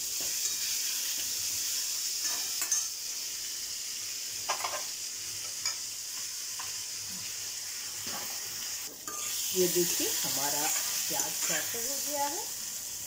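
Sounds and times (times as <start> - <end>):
onions sizzling in oil: 0.0 - 13.0
metal spoon scraping pan: 9.1 - 9.4, 10.3 - 11.8.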